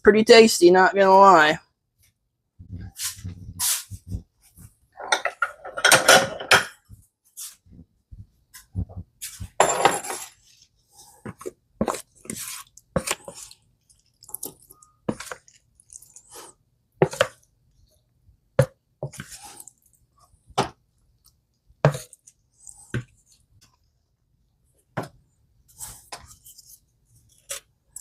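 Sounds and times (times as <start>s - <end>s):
spoon scraping: 10.0s - 17.4s.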